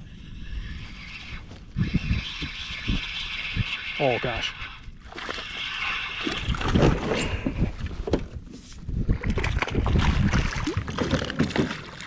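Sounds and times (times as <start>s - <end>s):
water sloshing: 9.2s - 12.0s.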